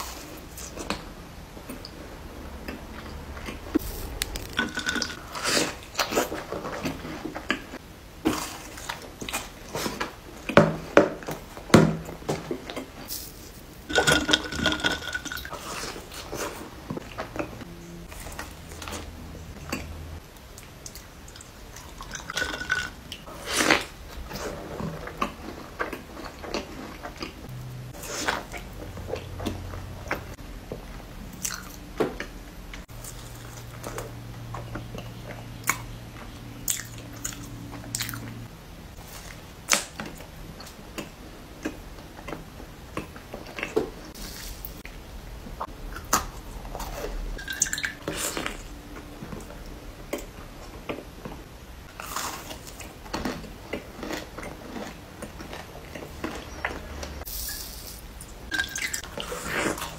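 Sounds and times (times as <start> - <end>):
wet chewing: 51.8 - 57.3.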